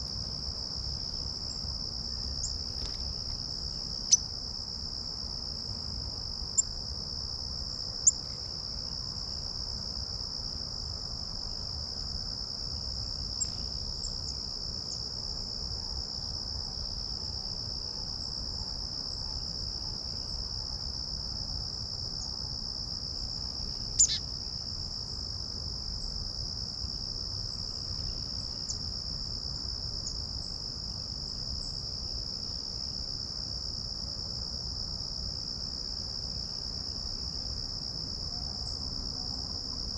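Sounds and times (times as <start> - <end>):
insect chorus trilling: 0.0 - 39.9
bird chirps: 24.0 - 24.2.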